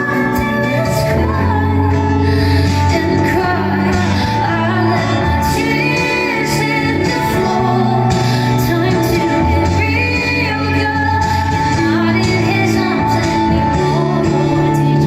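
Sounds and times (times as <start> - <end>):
held bass notes: 0.0 - 15.0
live pop band music: 0.0 - 15.0
wordless female vocals: 0.0 - 15.0.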